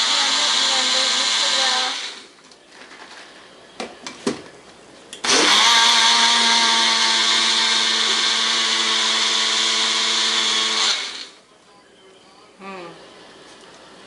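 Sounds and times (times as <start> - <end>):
countertop blender running: 0.0 - 2.3, 5.2 - 11.4.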